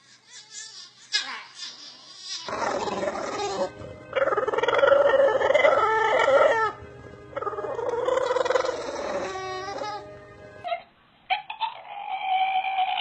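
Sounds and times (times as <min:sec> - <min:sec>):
dog howling: 0:02.5 - 0:06.8, 0:07.4 - 0:10.1.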